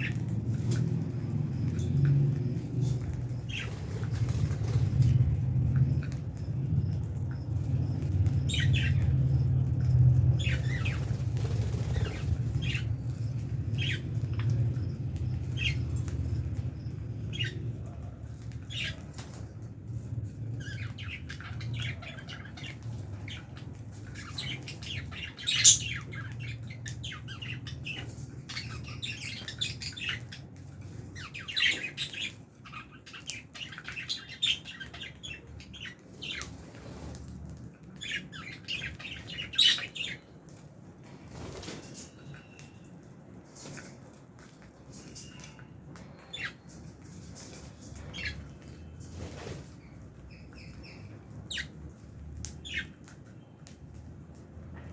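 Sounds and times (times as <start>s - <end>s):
lovebirds chirping and squawking: 0.0s - 54.9s.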